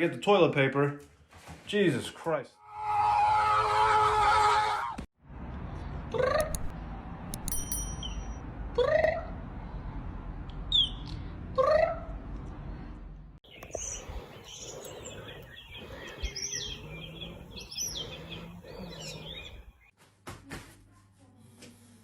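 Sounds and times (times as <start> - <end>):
bird chirps and twitters: 13.5 - 19.8
rising animal calls: 13.9 - 19.7.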